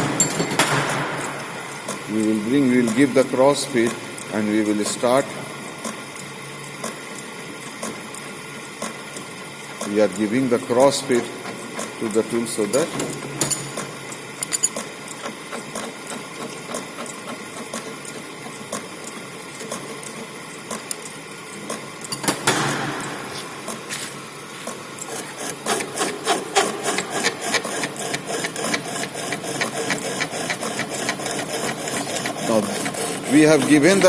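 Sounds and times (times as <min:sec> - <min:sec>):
lathe running: 0:23.0 - 0:34.0
cutting tool scraping and clicking: 0:25.0 - 0:34.0.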